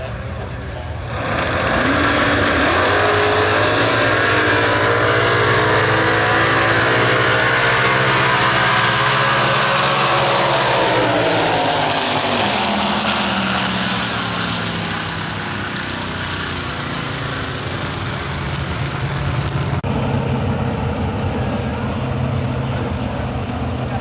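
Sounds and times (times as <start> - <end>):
race car engines at full throttle: 0.0 - 24.0
engines idling at low revs: 6.4 - 24.0.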